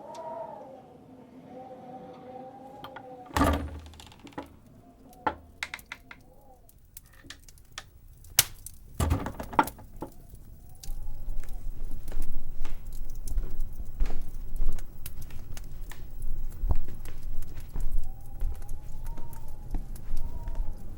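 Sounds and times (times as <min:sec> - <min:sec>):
sharp clicks and cracks: 0:02.8 - 0:20.8
wind howling: 0:09.9 - 0:20.9.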